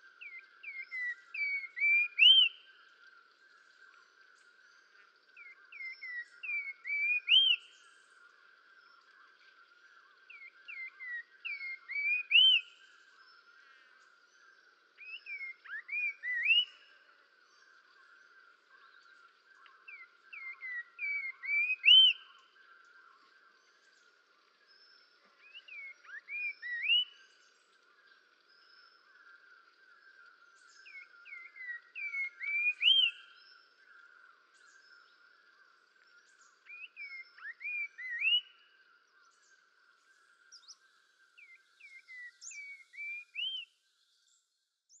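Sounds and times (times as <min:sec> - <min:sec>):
distant bird and insect calls: 0:00.0 - 0:45.0
songbird whistling phrases: 0:00.2 - 0:02.8, 0:05.4 - 0:07.8, 0:10.3 - 0:12.9, 0:15.0 - 0:16.9, 0:19.9 - 0:22.4, 0:25.4 - 0:27.3, 0:30.7 - 0:33.6, 0:36.6 - 0:38.7, 0:41.4 - 0:43.8.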